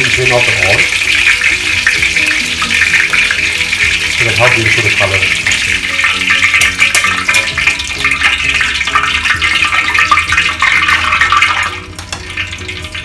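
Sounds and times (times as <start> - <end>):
hot oil sizzling and crackling: 0.0 - 13.0.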